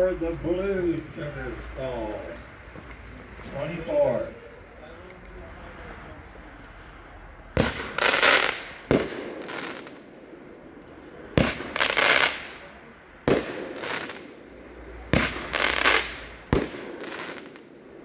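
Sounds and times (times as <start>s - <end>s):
crackling firework bursts: 7.5s - 18.0s
firework launch thumps: 7.6s - 9.8s.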